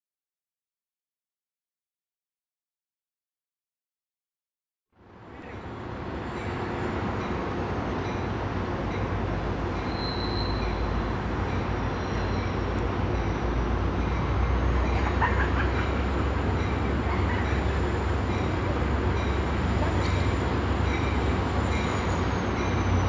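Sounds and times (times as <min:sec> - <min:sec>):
diesel locomotive approaching: 0:05.0 - 0:23.0.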